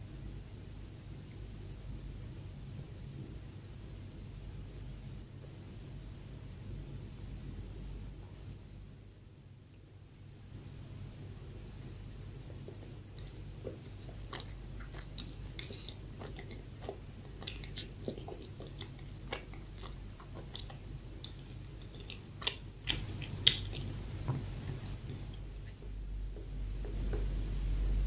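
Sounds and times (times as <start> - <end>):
person chewing bread: 12.3 - 27.4
wet mouth clicks and smacks: 14.0 - 24.0.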